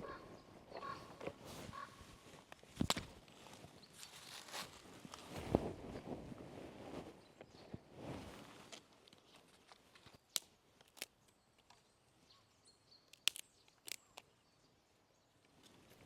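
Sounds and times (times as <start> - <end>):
faint bird chirp: 0.0 - 2.0, 11.0 - 16.0
forest background: 0.0 - 16.0
sharp clicks and snaps: 9.0 - 11.8, 13.1 - 14.3.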